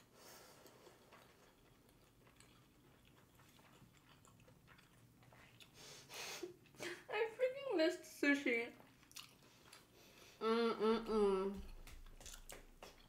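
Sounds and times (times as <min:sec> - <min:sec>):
soft wet mouth clicks chewing: 0:00.6 - 0:05.8, 0:08.8 - 0:10.0, 0:11.6 - 0:13.0.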